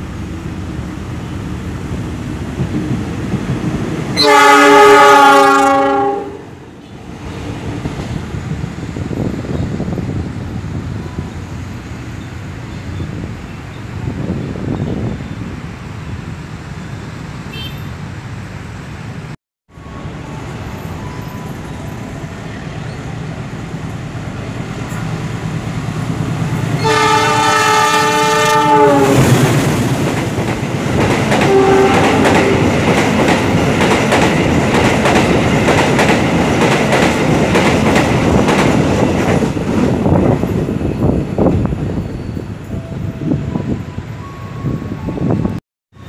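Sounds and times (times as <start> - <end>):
train rumbling: 0.0 - 46.0
locomotive horn: 4.2 - 7.0, 26.7 - 29.5, 31.4 - 32.7
wheels clickety-clack: 29.5 - 40.7.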